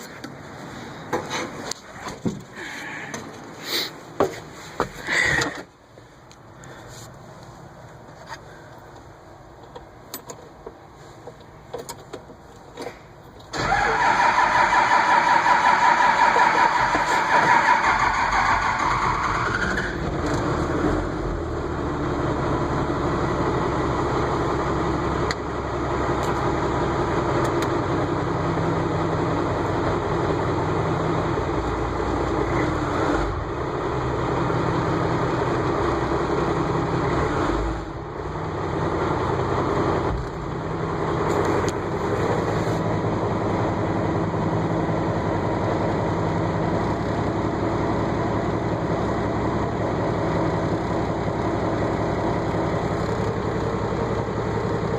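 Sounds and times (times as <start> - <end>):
diesel engine idling: 13.6 - 32.6, 33.2 - 54.9.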